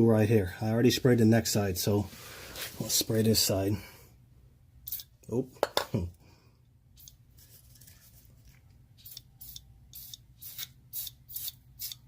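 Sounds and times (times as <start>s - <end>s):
aerosol can squirting hisses: 9.0s - 12.0s.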